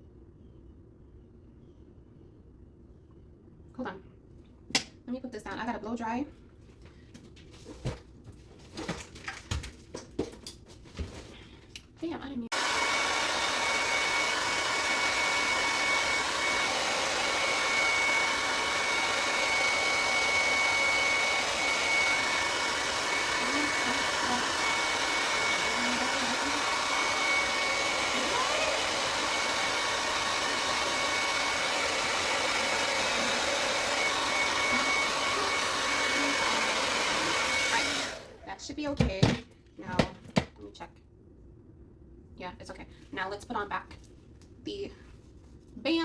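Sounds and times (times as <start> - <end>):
hair dryer running: 12.5 - 38.6.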